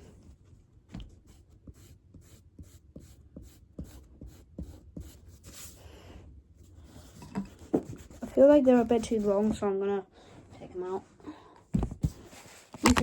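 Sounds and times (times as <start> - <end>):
pencil scratching on paper: 1.2 - 6.1, 6.7 - 9.6.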